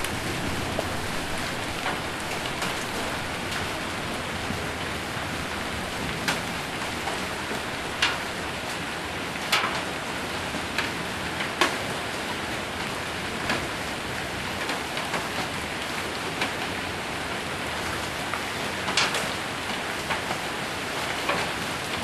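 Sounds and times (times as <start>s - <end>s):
hailstones knocking on roof: 0.0s - 8.2s
heavy rain on a roof: 0.0s - 22.0s.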